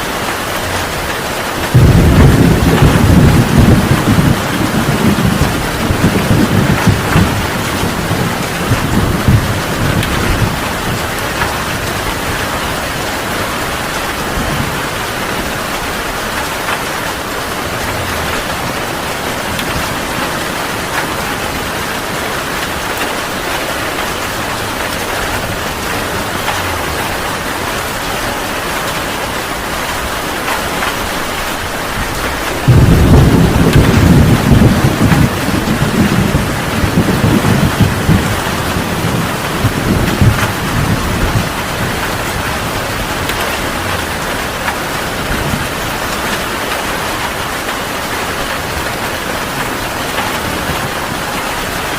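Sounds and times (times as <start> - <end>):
heavy rain falling: 0.0 - 51.9
thunder rumbling: 0.2 - 51.9.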